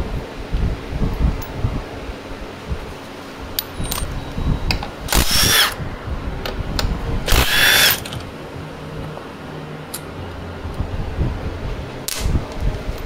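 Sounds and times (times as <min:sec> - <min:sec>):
power tool motor whine: 0:05.1 - 0:05.8, 0:07.3 - 0:08.3.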